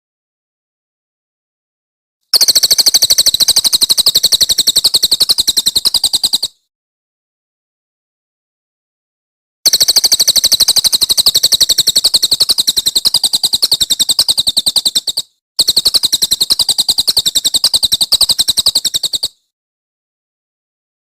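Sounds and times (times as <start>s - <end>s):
songbird trilling: 2.4s - 6.5s, 9.7s - 19.4s.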